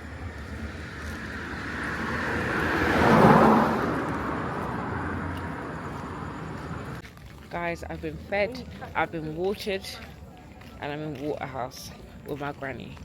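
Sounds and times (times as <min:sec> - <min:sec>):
vehicle driving past: 0:00.0 - 0:07.0.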